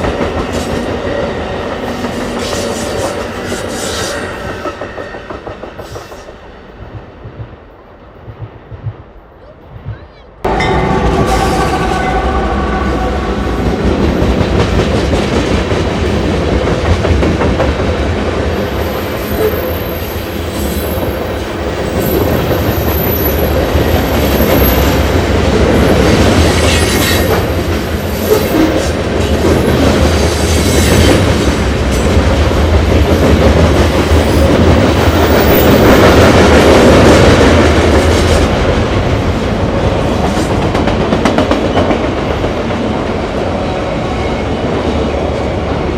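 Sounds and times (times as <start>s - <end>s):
train wheels clicking over rail joints: 1.7s - 10.0s.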